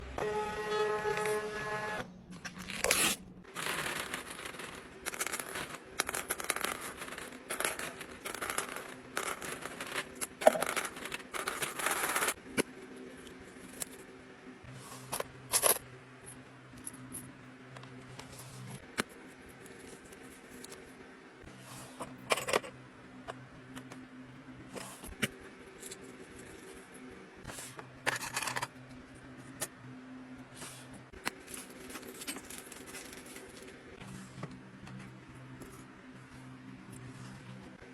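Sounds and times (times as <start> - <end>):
wrapping tearing and crinkling: 2.5 - 4.3.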